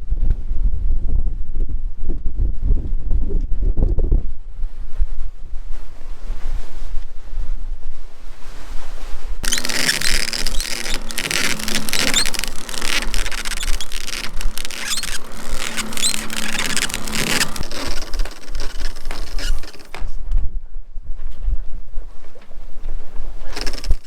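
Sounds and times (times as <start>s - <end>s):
scraping and squeaks: 9.4s - 20.1s, 23.4s - 24.0s.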